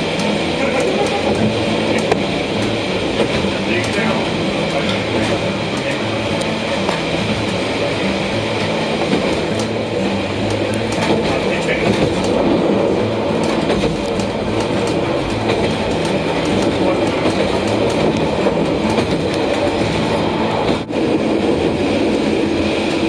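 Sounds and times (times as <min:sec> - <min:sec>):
train engine hum: 0:00.0 - 0:23.0
wheels rumbling on rails: 0:00.0 - 0:23.0.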